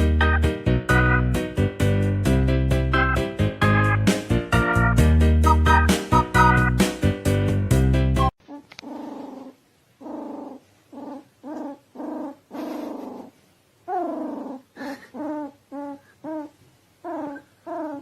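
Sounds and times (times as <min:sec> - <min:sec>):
dog whining: 0:08.4 - 0:18.0.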